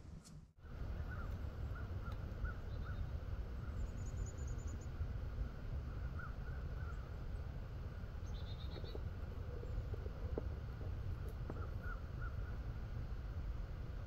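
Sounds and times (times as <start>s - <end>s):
steady low rumble: 0.0s - 14.0s
birds calling: 0.8s - 5.0s, 5.8s - 12.9s
high bird trill: 8.2s - 10.1s.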